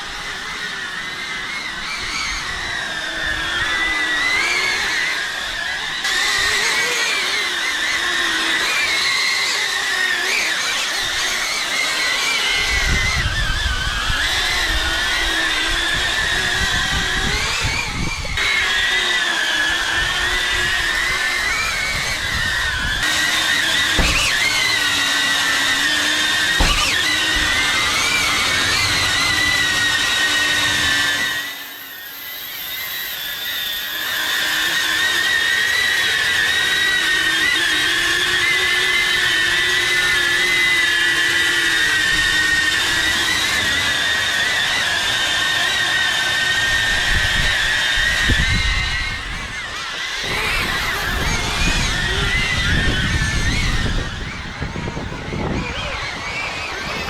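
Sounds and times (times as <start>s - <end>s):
drone propellers whining: 0.0s - 57.0s
sharp knocks: 23.1s - 25.2s, 26.6s - 27.6s.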